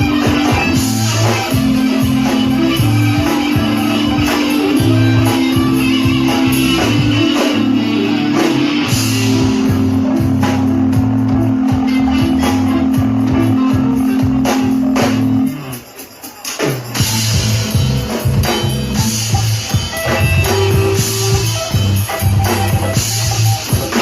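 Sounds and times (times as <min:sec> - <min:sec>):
bass line: 0:00.0 - 0:15.8, 0:17.0 - 0:24.0
guitar: 0:00.0 - 0:24.0
live band playing: 0:00.0 - 0:24.0.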